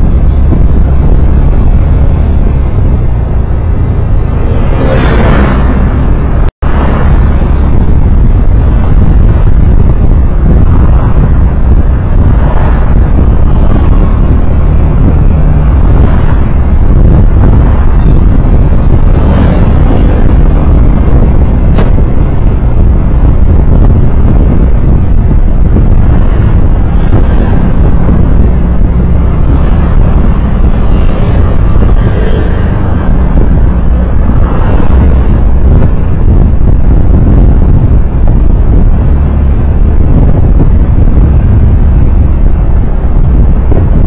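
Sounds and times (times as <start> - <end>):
vehicle engine and road rumble: 0.0 - 44.0.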